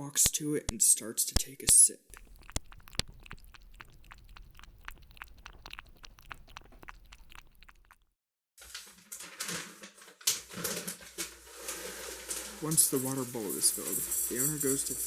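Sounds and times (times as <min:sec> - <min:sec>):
cat lapping water: 0:02.1 - 0:08.1.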